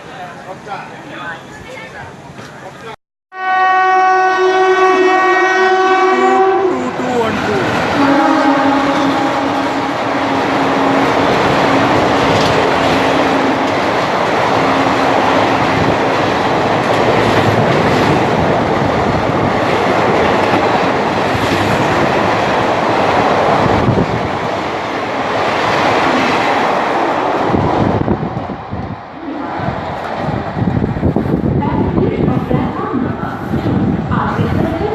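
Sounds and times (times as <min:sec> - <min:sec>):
train horn: 0:03.3 - 0:11.2
train wheels rattling over rails: 0:07.2 - 0:29.0.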